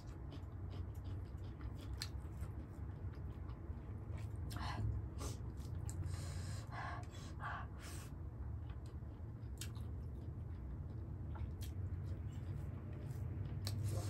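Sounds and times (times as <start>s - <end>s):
chewing and wet mouth smacks: 0.0s - 4.6s, 8.6s - 14.0s
steady low hum: 0.0s - 14.0s.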